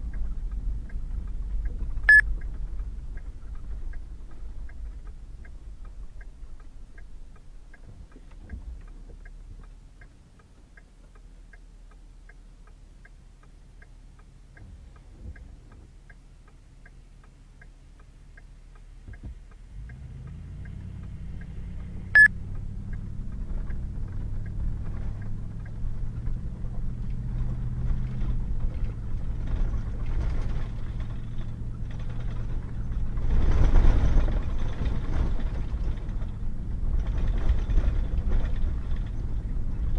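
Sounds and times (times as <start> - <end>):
light ticking: 0.0 - 39.9
truck engine running: 19.8 - 39.9.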